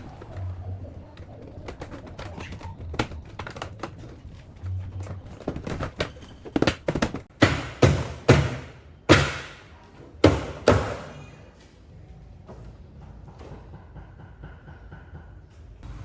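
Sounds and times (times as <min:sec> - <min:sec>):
hard knocks: 0:06.0 - 0:09.6, 0:10.2 - 0:11.1.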